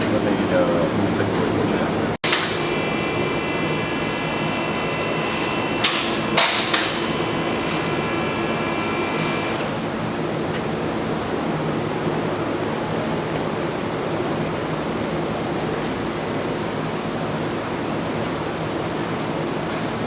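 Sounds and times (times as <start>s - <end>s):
faint high whine: 2.5s - 9.6s.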